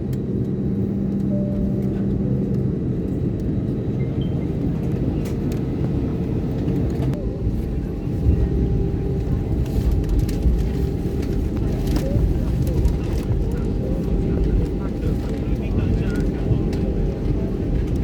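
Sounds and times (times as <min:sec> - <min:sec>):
airliner engine drone: 0:00.0 - 0:18.0.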